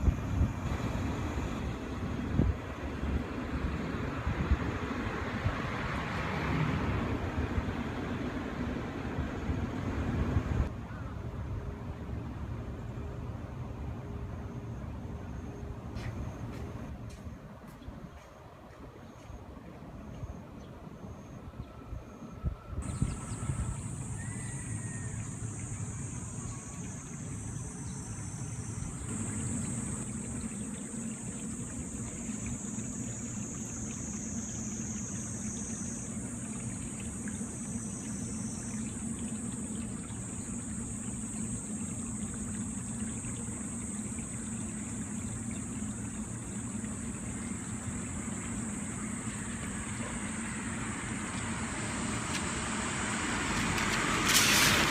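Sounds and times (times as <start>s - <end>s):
high hiss: 22.8s - 54.9s
train rumbling: 49.6s - 54.9s.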